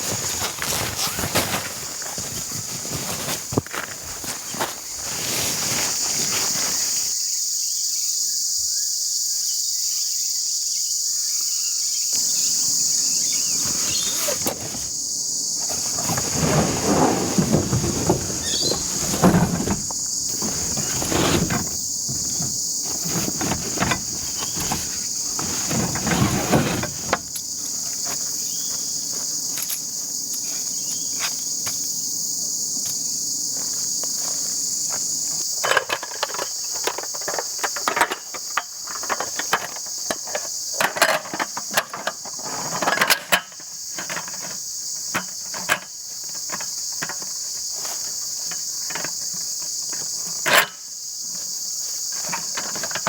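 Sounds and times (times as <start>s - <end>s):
insects droning: 0.0s - 53.0s
rustling and handling clicks: 15.6s - 27.5s.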